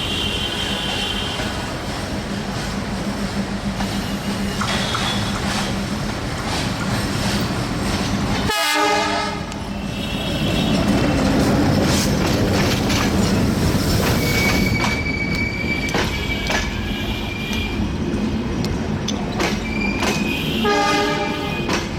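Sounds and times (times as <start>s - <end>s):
train horn blast: 8.5s - 10.9s, 20.2s - 21.8s
wheels clattering over rail joints: 10.4s - 17.7s
high wheel squeal: 13.8s - 17.8s.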